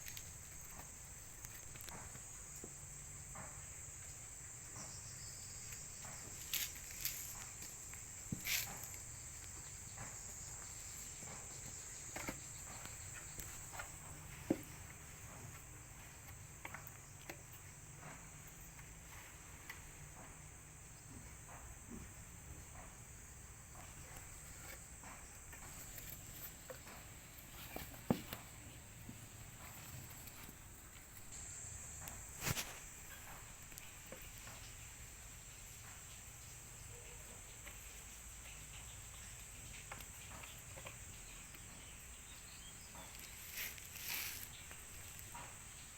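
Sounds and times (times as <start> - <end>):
high-pitched insect trill: 0.0 - 16.8.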